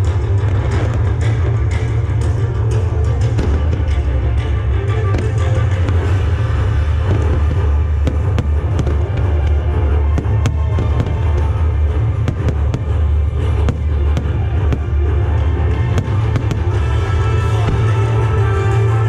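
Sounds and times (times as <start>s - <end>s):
heavy low rumble: 0.0s - 19.0s
music over loudspeakers: 0.0s - 19.0s
fireworks cracking and popping: 5.1s - 19.0s.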